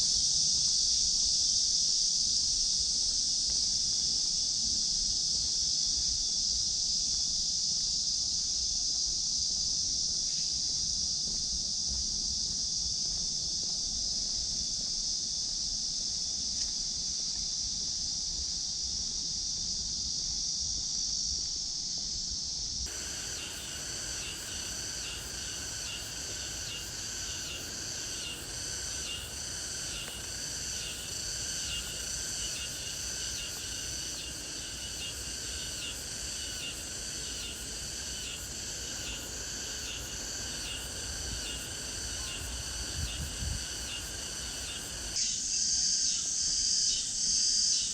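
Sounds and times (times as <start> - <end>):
cicadas buzzing: 22.9 - 47.9.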